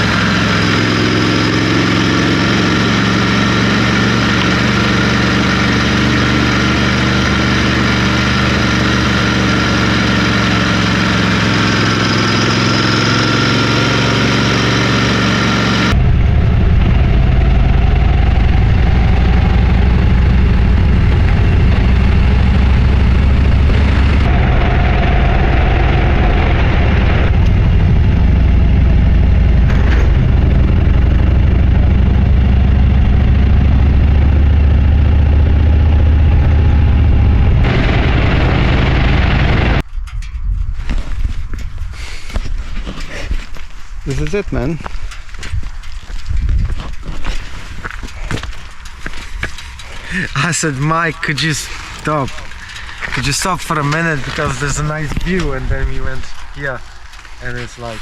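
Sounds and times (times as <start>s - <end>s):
motorcycle engine running: 0.0s - 40.2s, 44.1s - 58.0s
road noise: 0.0s - 58.0s
wind noise: 15.9s - 58.0s.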